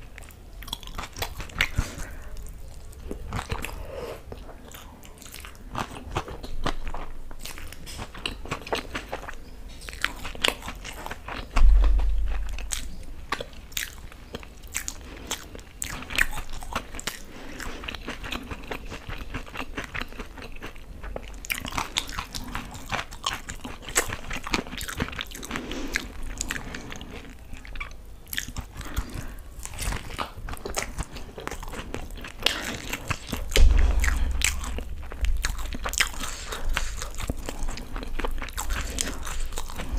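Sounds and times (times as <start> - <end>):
crunchy biting and wet chewing: 0.0 - 39.9
dull low thumps: 11.6 - 12.9, 33.5 - 39.0.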